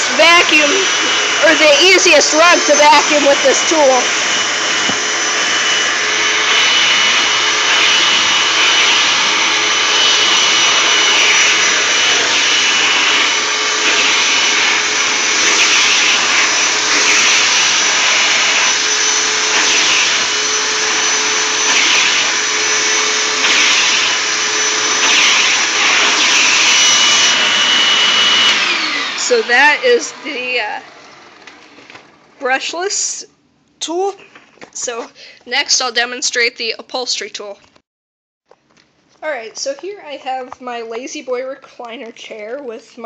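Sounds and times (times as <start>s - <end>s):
vacuum cleaner running: 0.0s - 32.8s.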